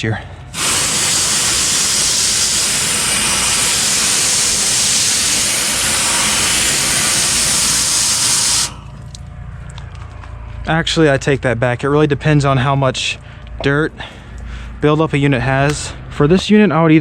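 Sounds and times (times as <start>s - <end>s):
hose spraying water on metal coil: 0.5s - 9.2s.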